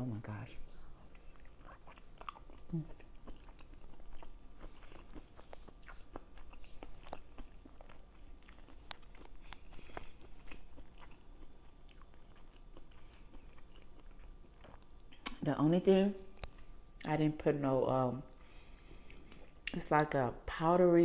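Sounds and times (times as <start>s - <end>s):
person chewing food: 0.7s - 15.4s, 18.3s - 19.7s.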